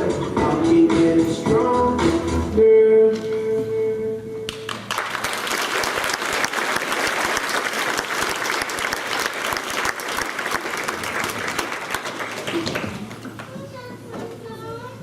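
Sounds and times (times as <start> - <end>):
audience applause: 4.5 - 13.5.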